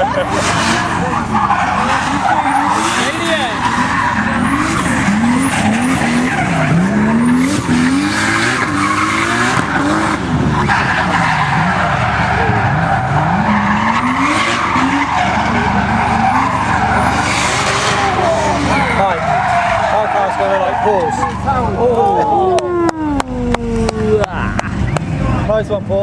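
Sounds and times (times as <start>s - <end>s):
car engine revving hard: 0.0s - 21.7s
tyres screeching: 0.0s - 25.5s.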